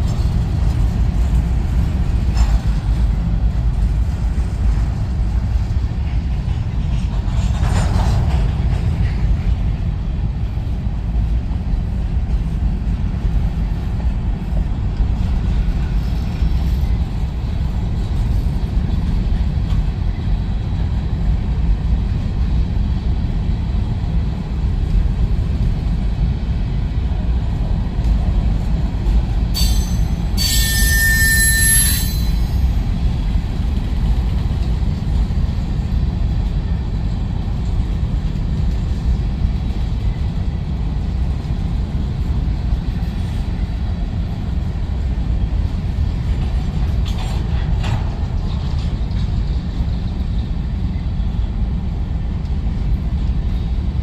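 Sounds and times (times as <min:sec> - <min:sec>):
train rumbling past: 0:00.0 - 0:54.0
wheels screeching on rail: 0:27.3 - 0:36.8.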